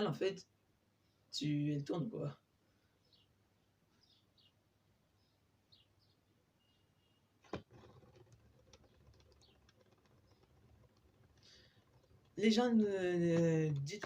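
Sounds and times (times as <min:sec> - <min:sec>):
faint high chirps: 0:05.2 - 0:07.4.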